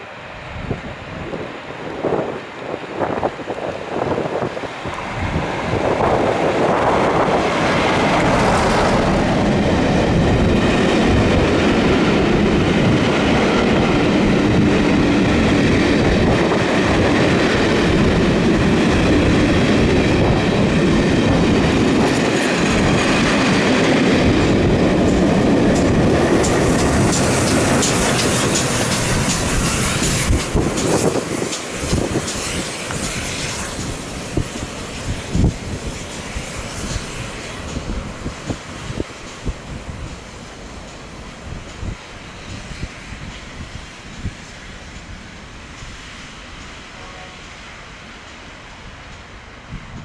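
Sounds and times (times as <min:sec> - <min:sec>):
diesel locomotive passing: 0:00.0 - 0:50.0
wheels clattering over rail joints: 0:04.8 - 0:35.6
sharp high ticks: 0:25.1 - 0:33.1.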